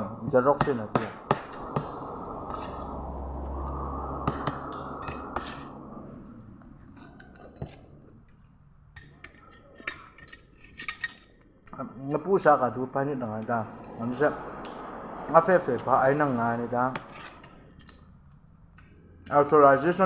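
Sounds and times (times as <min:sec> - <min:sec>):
steady rushing noise: 0:00.0 - 0:09.0, 0:12.1 - 0:17.8.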